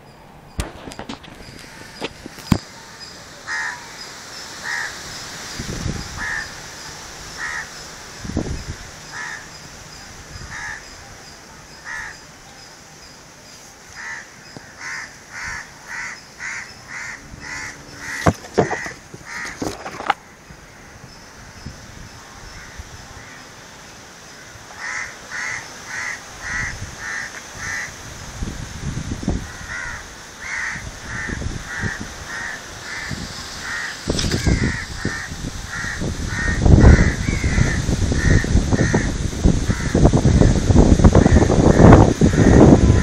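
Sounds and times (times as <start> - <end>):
bird calling: 13.9 - 21.0
low bumps: 16.4 - 20.2.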